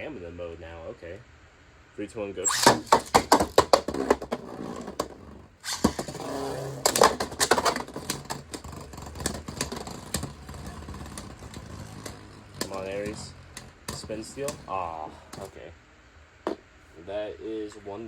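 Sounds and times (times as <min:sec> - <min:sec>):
spinning tops whirring: 0:02.4 - 0:15.5
spinning tops clacking together: 0:05.6 - 0:15.5.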